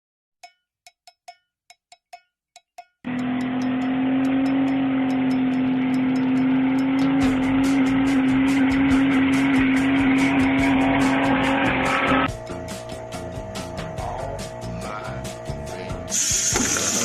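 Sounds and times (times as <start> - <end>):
quick regular ticking beat: 0.4 - 11.6, 12.2 - 17.0
ringing ticks: 0.4 - 11.6
loud engine-like drone: 3.1 - 17.0.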